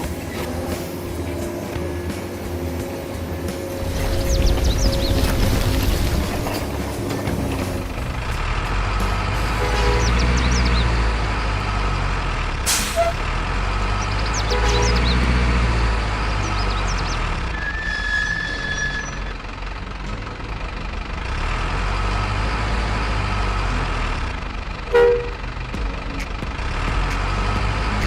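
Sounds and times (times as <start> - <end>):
toy truck engine rumble: 0.0 - 28.0
air brake hiss: 12.7 - 13.1.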